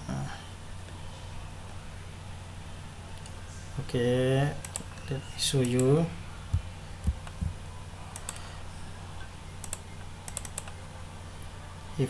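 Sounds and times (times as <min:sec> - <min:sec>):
steady low hum: 0:00.0 - 0:12.0
computer clicks and taps: 0:04.6 - 0:04.9, 0:06.5 - 0:08.4, 0:09.6 - 0:10.8.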